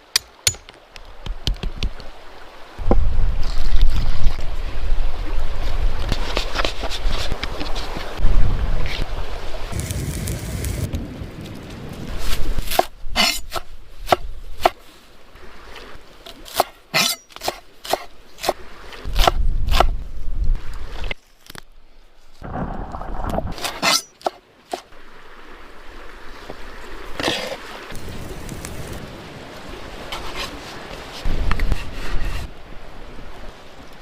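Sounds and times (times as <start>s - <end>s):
sharp knocks and clicks: 0.2s - 2.0s
low rumbling noise: 22.4s - 23.6s.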